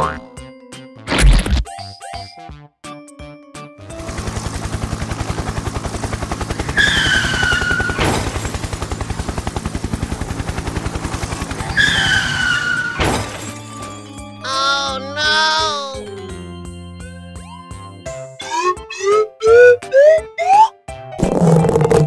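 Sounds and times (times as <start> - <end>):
cartoon engine chugging rattle: 3.9 - 13.0
tyre skid squeal: 11.7 - 13.2.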